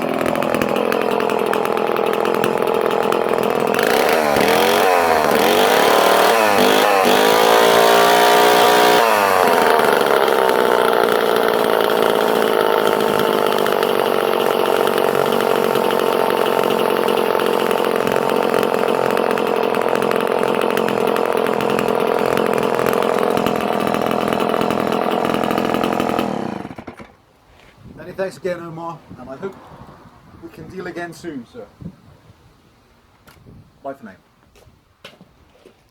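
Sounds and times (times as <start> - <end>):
chainsaw revving: 0.0 - 27.1.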